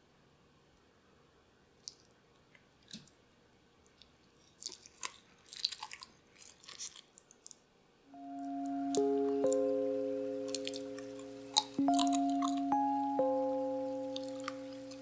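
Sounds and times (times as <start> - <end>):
crisp crunching and crackling: 4.0 - 7.6
soft music with sustained tones: 8.1 - 15.0.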